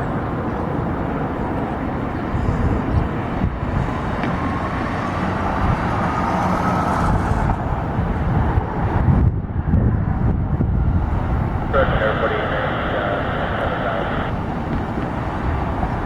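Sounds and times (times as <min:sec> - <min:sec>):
engine rumble: 0:00.0 - 0:16.0
faint high whine: 0:11.7 - 0:14.4.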